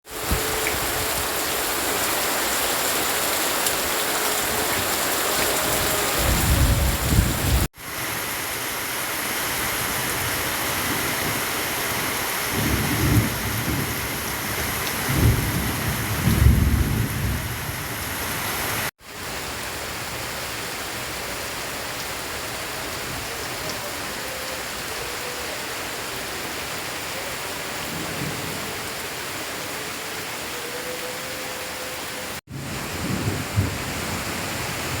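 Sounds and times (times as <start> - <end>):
heavy rain pouring: 0.0 - 35.0
thunder rolling: 4.7 - 7.7, 32.5 - 35.0.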